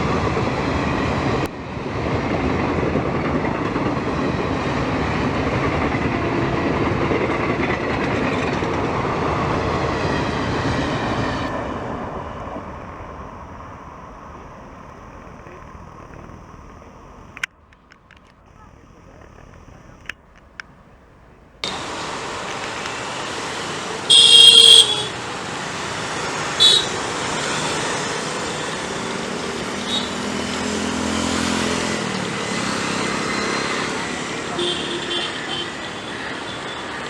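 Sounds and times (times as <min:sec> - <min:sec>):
train rushing past: 0:00.0 - 0:17.7, 0:21.4 - 0:37.0
loud high-pitched sound: 0:24.1 - 0:25.2.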